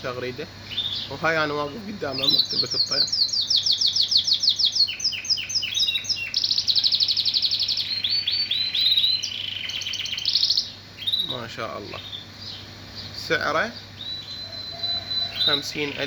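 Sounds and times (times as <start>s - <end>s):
canary singing with trills: 0.0s - 16.0s.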